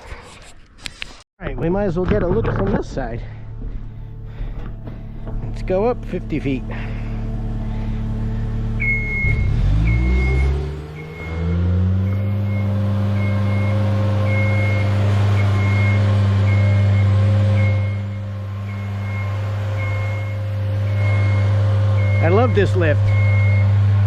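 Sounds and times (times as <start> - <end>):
lift engine speeding up: 4.8 - 24.0
motion alarm beeping: 8.8 - 23.8.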